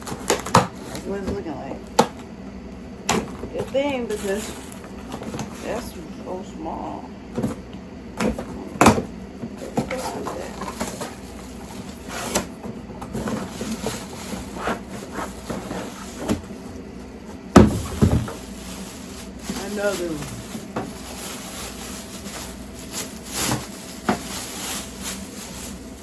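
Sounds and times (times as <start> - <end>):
box and packaging handled: 9.5 - 26.0.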